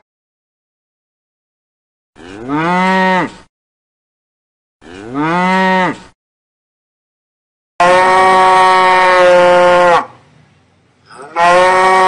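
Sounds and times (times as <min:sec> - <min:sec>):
cow mooing: 0:02.2 - 0:03.4, 0:04.8 - 0:06.0, 0:07.8 - 0:10.2, 0:11.1 - 0:12.0.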